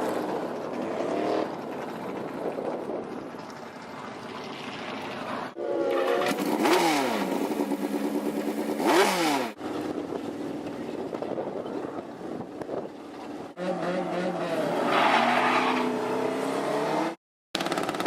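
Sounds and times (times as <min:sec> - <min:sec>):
motorcycle engine revving: 0:05.9 - 0:10.0, 0:15.8 - 0:18.0.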